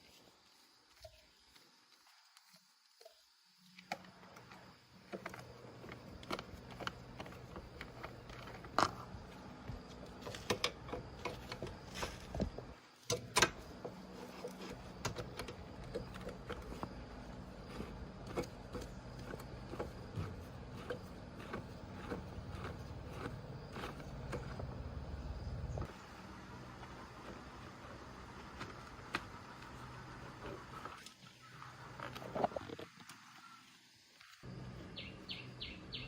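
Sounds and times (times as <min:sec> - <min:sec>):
steady low hum: 0:04.2 - 0:32.7.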